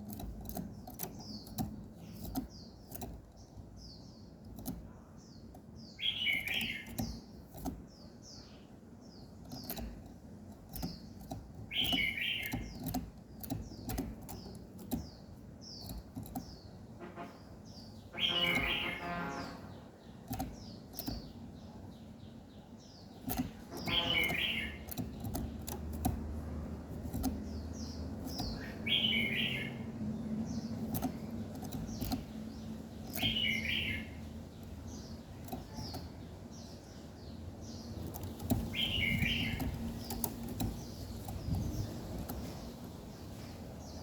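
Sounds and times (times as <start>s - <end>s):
songbirds chirping: 0.0s - 44.0s
warbled bird song: 0.0s - 44.0s.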